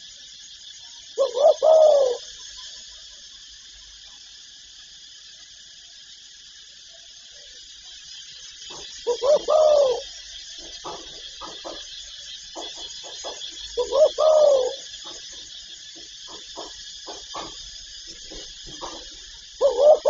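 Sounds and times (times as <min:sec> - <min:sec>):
steady high hiss: 0:00.0 - 0:20.0
dove cooing: 0:01.2 - 0:02.3, 0:08.7 - 0:10.2, 0:13.8 - 0:15.2, 0:19.6 - 0:20.0.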